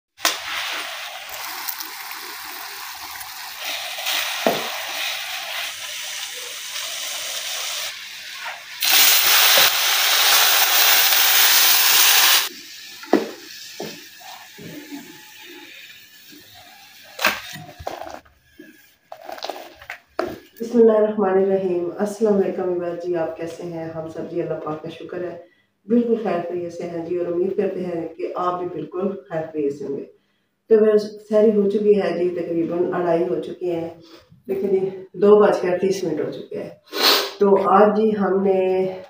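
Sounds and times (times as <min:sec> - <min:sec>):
loud steady hiss from griddle: 0:00.2 - 0:18.0
masala sizzling in a frying pan: 0:00.2 - 0:18.2.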